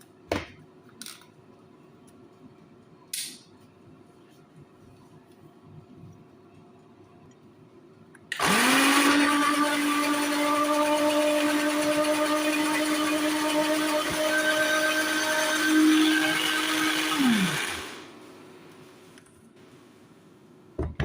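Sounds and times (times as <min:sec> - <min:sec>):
blender motor winding down: 0:08.3 - 0:18.2
electric blender running: 0:08.4 - 0:18.2.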